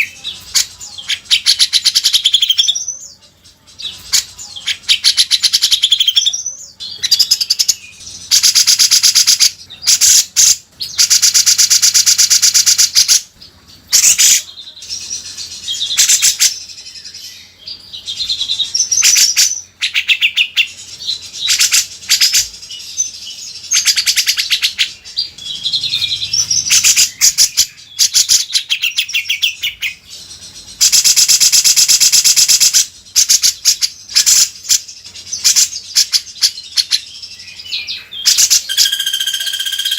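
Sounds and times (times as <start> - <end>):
bulbul singing rapid trills: 0.0 - 39.9.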